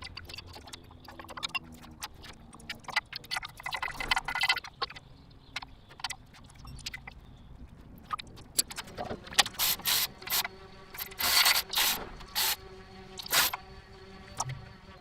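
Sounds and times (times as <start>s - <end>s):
ratchet clicking: 9.4s - 12.6s, 13.2s - 13.6s
loud rasping bursts: 9.6s - 12.6s, 13.2s - 13.6s.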